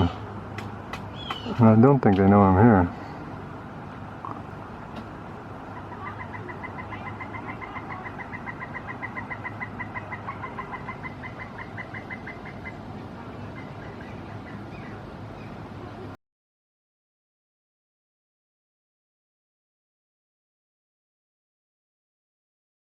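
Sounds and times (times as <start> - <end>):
woodpecker long call: 1.1 - 1.6, 5.6 - 15.6.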